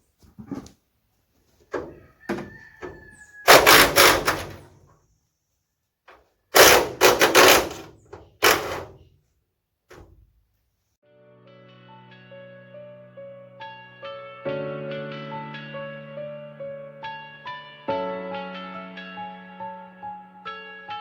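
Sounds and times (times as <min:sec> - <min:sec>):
loud clattering bursts: 0:03.4 - 0:04.7, 0:06.5 - 0:09.1.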